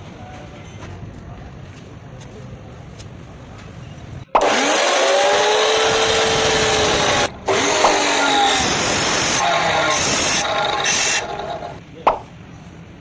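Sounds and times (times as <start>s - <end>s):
power tool motor whining: 4.4s - 11.8s.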